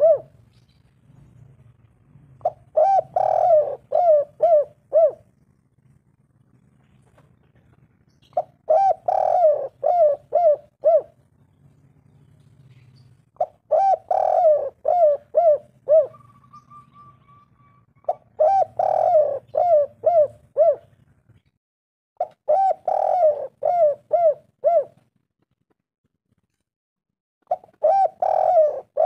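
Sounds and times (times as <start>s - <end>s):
dove cooing: 0.0s - 0.4s, 2.4s - 5.7s, 6.6s - 11.3s, 12.7s - 21.0s, 22.2s - 25.0s, 27.5s - 29.0s.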